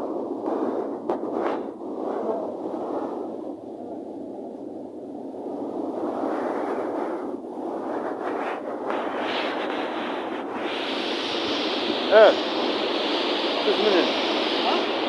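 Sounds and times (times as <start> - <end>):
sea surf on rocky shore: 8.9 - 15.0.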